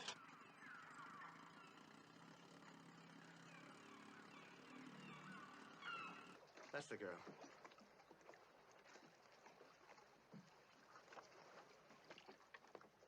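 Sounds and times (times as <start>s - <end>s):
outboard motor humming: 0.0s - 7.6s.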